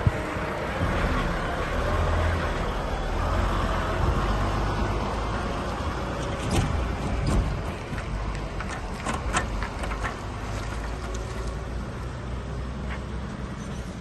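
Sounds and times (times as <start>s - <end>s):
vehicle engine rumbling: 0.0s - 14.0s
sharp knocks and clicks: 6.2s - 11.2s.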